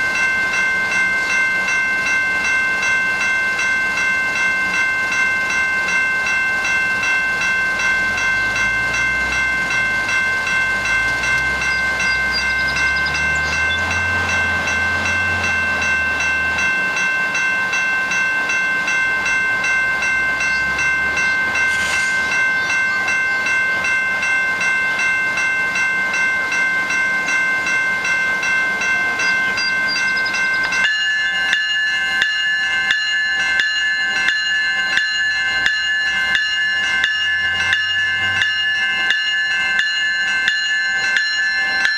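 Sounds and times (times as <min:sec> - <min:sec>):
diesel engine rumbling: 0:00.0 - 0:41.9
train wheel squeal: 0:08.1 - 0:16.0, 0:20.1 - 0:24.0, 0:28.9 - 0:31.7.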